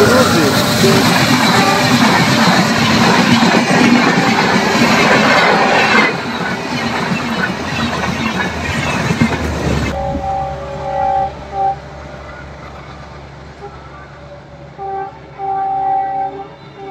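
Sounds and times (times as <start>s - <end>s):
multi-tone train horn: 0.0s - 4.4s, 5.1s - 6.1s, 9.9s - 16.9s
train clattering past: 0.0s - 16.9s.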